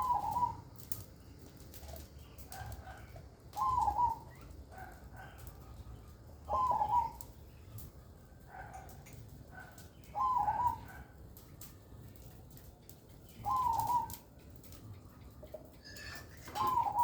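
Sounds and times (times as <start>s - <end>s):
dove cooing: 0.0s - 1.0s, 1.7s - 7.4s, 8.5s - 11.2s, 13.3s - 17.0s.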